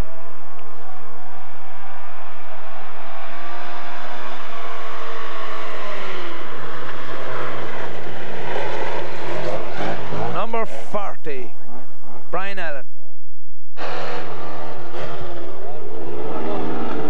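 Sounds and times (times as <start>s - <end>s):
rally car engine revving: 0.0s - 12.9s, 13.8s - 17.0s.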